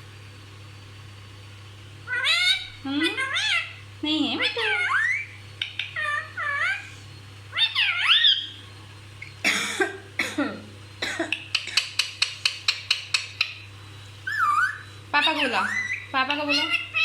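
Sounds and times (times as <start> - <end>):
parrot whistled calls: 2.1 - 3.8, 4.4 - 8.6, 14.2 - 17.0
parrot squawking: 2.1 - 8.6, 14.2 - 17.0
parrot clicking chirps: 5.6 - 6.6, 11.3 - 13.6.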